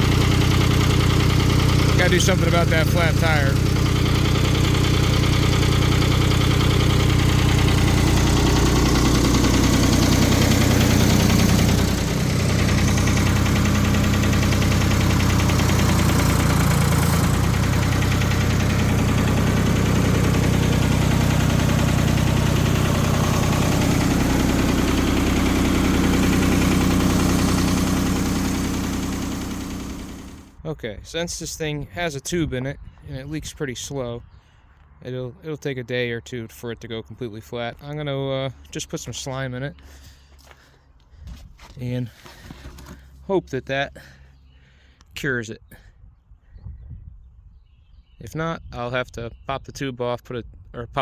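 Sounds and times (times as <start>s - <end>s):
diesel engine idling: 0.0s - 30.7s.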